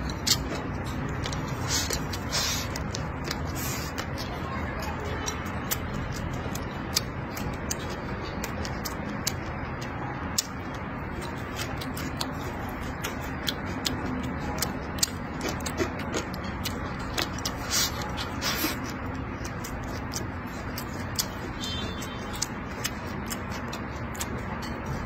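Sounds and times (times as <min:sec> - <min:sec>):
person chewing food: 0:00.0 - 0:25.0
hissing slurps: 0:01.6 - 0:02.9
wet mouth clicks and smacks: 0:05.2 - 0:25.0.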